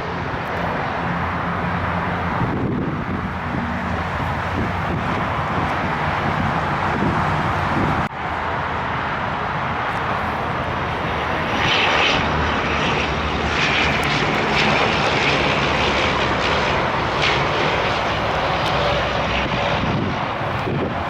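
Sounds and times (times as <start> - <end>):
jet airliner flying past: 0.0 - 21.0.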